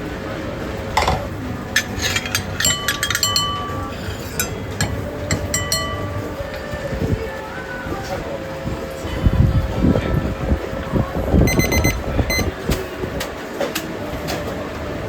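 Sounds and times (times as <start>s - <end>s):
steady low background noise: 0.0s - 15.0s
dishes and utensils clinking: 1.0s - 6.6s.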